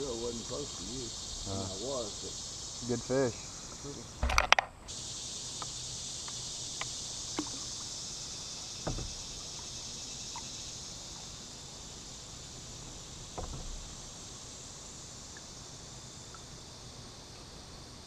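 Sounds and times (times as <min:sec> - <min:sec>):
creek hiss: 0:00.0 - 0:18.0
light ticks: 0:05.6 - 0:07.5
dull knocks against kayak: 0:08.8 - 0:09.2, 0:13.4 - 0:13.9.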